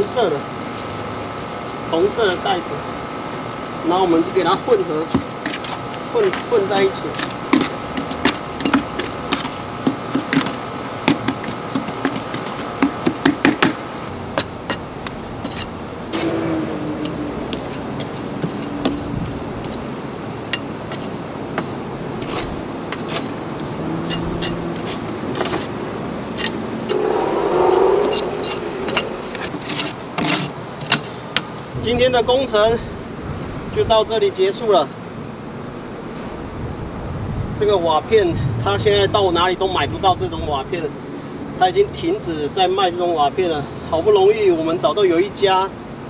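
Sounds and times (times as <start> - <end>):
cement rubbing and scraping: 20.9 - 25.8.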